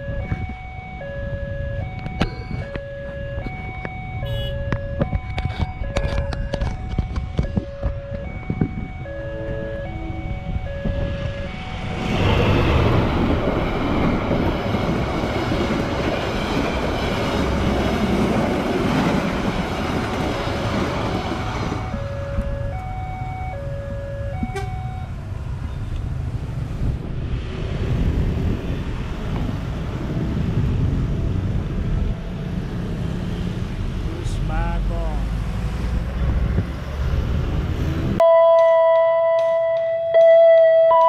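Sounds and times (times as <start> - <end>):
crossing warning bell: 0.0 - 12.3, 21.1 - 25.9, 38.2 - 41.0
passenger train passing: 8.7 - 41.0
motorcycle engines: 21.1 - 38.2.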